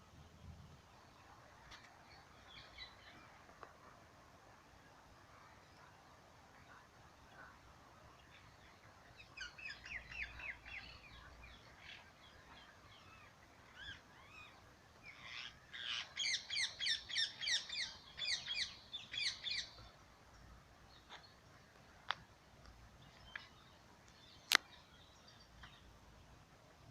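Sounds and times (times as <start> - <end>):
bird chirping: 8.3 - 21.5.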